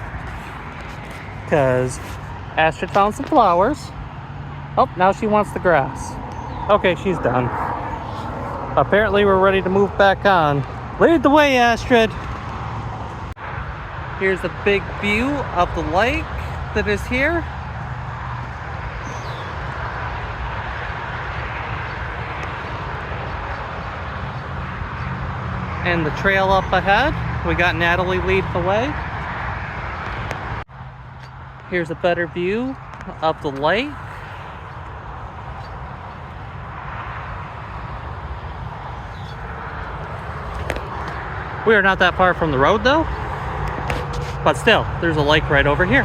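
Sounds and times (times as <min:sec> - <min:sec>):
traffic tyre hiss: 0:00.0 - 0:04.0, 0:06.8 - 0:10.6.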